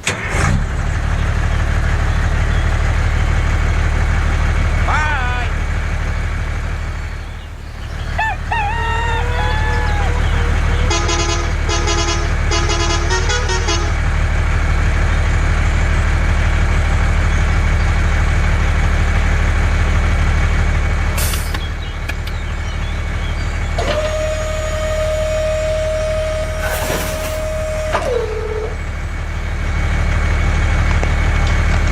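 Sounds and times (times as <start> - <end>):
truck engine running: 0.0 - 31.9
horn tooting: 6.6 - 14.3, 23.8 - 29.6.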